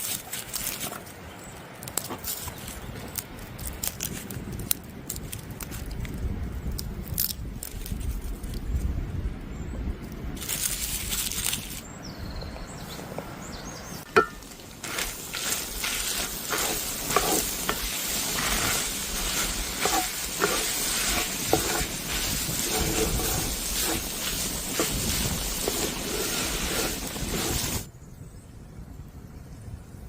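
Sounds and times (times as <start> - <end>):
food sizzling in a pan: 14.2 - 27.9.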